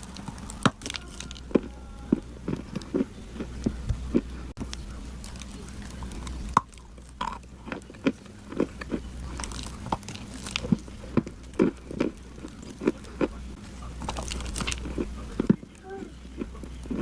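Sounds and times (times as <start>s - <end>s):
person chewing crunchy clay: 0.0s - 17.0s.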